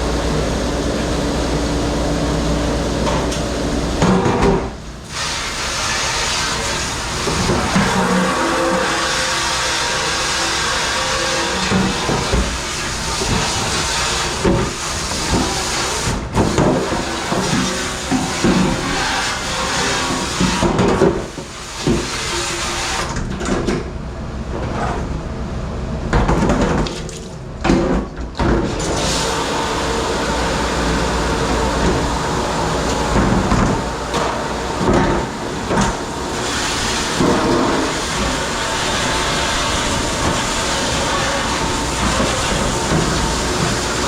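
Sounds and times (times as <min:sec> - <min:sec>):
running water hissing: 0:28.9 - 0:44.0.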